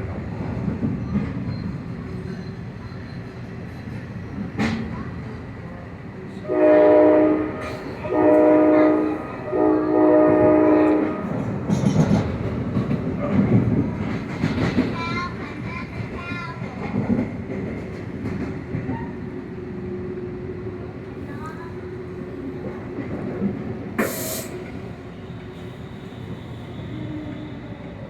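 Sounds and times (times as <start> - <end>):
train rumble: 0.0 - 28.0
train horn blasts: 6.4 - 11.4.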